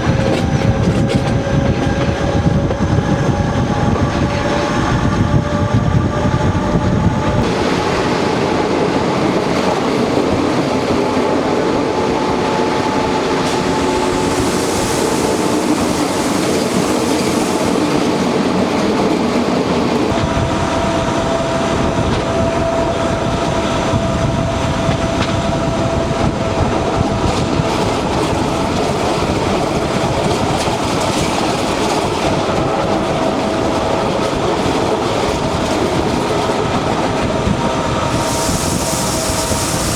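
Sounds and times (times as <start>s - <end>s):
train wheels clattering over joints: 0.0s - 4.9s
deep train rumble: 0.0s - 39.9s
train whine: 0.0s - 39.9s.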